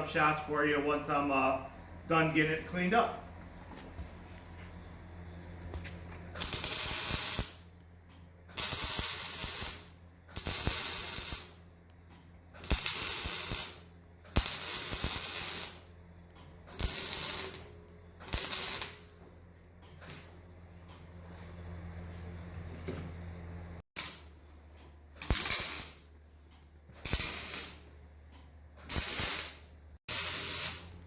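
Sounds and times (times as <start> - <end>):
steady low hum: 0.0 - 31.0
arc welding sizzling hiss: 6.4 - 7.7, 8.5 - 11.7, 12.6 - 16.0, 16.7 - 19.1, 24.0 - 24.4, 25.2 - 26.1, 27.0 - 28.0, 28.8 - 31.0.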